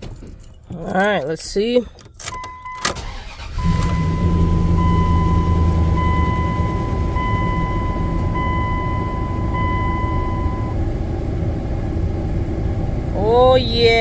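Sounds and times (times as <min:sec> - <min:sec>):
warning chime beeping: 0:02.3 - 0:10.8
truck engine idling: 0:03.0 - 0:14.0.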